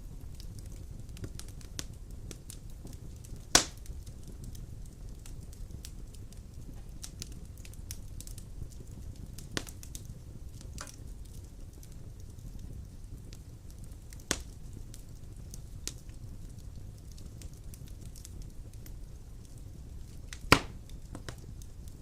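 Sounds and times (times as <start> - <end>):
logs crackling in fireplace: 0.0 - 22.0
sharp fire pops: 0.1 - 22.0.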